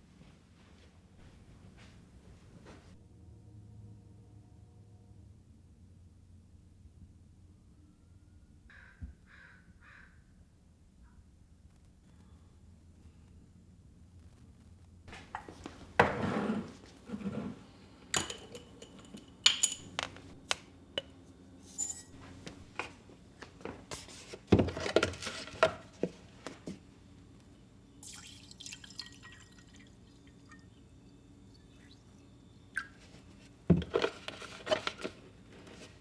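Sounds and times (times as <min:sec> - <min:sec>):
glass clicking and knocking: 0:18.1 - 0:22.6
liquid pouring: 0:28.0 - 0:33.5.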